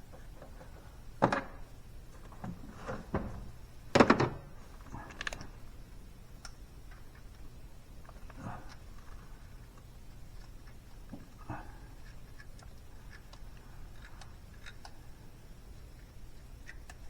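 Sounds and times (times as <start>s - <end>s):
low background hum: 0.0s - 17.0s
knocks and clunks: 0.4s - 4.6s.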